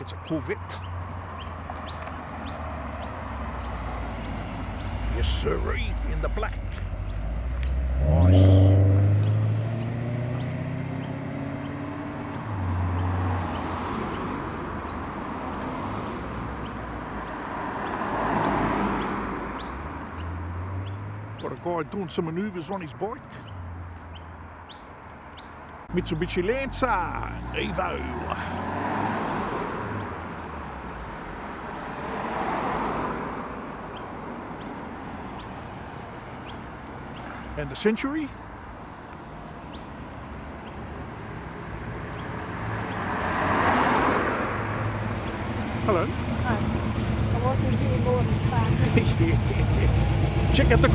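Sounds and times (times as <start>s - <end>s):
car engine rolling past: 1.6s - 16.9s, 25.9s - 33.4s, 42.1s - 50.9s.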